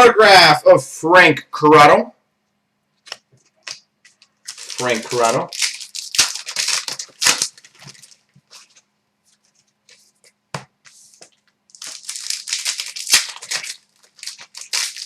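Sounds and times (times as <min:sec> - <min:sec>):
wrapper tearing and crinkling: 0:03.7 - 0:08.8, 0:11.7 - 0:15.0.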